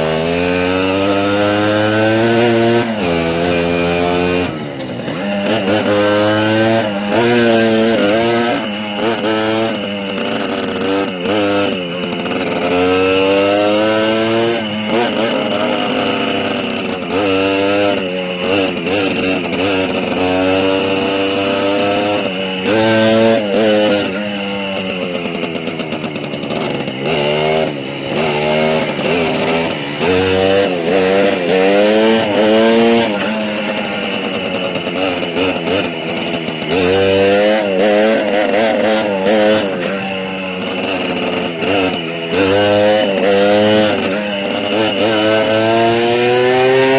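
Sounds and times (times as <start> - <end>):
small motorbike engine revving: 0.0 - 46.9.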